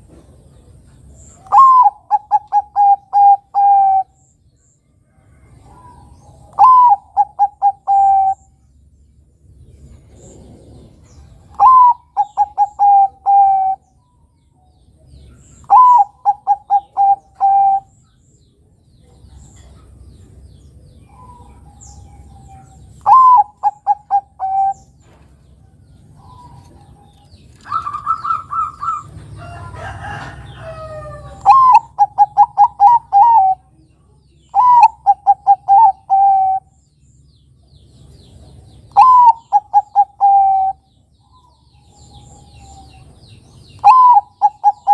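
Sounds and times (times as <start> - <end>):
bird chirps: 0.0 - 44.9
dove cooing: 1.4 - 4.2, 5.7 - 8.5, 11.5 - 13.8, 15.6 - 17.9, 21.1 - 24.9, 26.2 - 33.7, 34.5 - 36.7, 38.9 - 40.9, 43.8 - 44.9.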